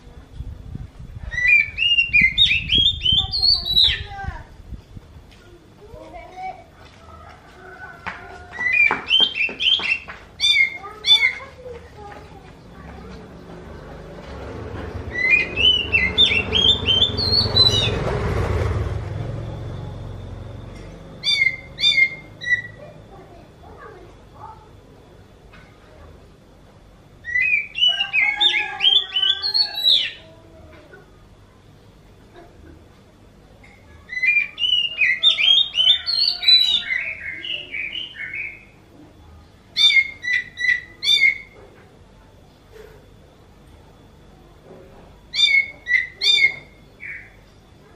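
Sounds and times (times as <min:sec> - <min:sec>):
songbird whistling: 0:01.3 - 0:04.1, 0:08.5 - 0:11.4, 0:15.1 - 0:18.0, 0:21.2 - 0:22.8, 0:27.2 - 0:30.2, 0:34.1 - 0:38.7, 0:45.3 - 0:47.4
magpie-robin singing: 0:01.3 - 0:04.3, 0:08.5 - 0:11.6, 0:15.0 - 0:18.1, 0:21.1 - 0:22.8, 0:27.2 - 0:30.3, 0:34.1 - 0:38.8, 0:39.7 - 0:41.6, 0:45.3 - 0:47.5.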